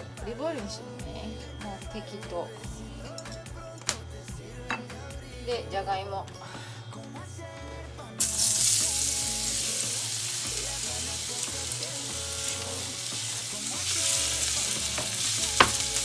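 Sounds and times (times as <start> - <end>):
food sizzling in hot oil: 8.2 - 16.0.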